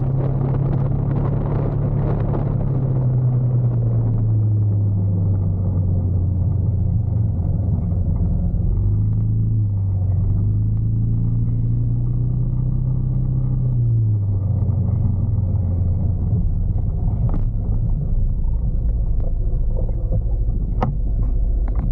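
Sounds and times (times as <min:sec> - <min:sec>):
steady low rumble: 0:00.0 - 0:21.9.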